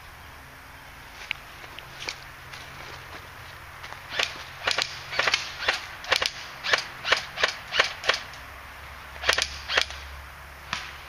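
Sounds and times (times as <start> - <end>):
airsoft gun shots: 4.1 - 8.3, 9.2 - 10.0, 10.7 - 11.0.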